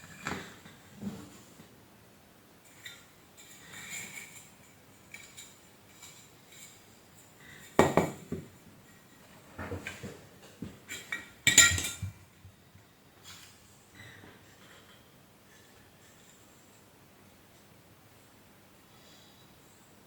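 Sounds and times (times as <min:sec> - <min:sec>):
metal parts clinking and knocking: 0:10.9 - 0:12.1.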